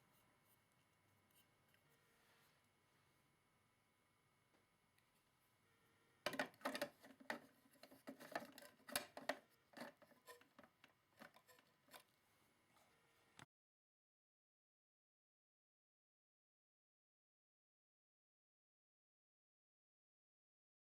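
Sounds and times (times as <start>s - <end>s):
objects being handled: 6.2s - 12.2s.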